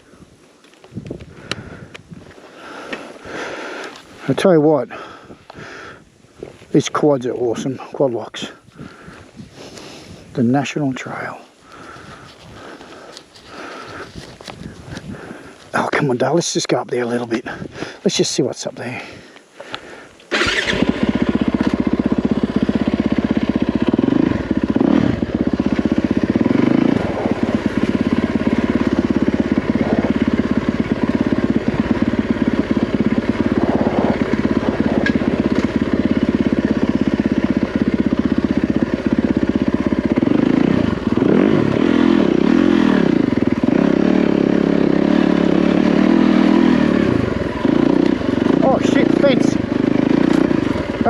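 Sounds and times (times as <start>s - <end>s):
dirt bike engine revving: 20.3s - 51.0s.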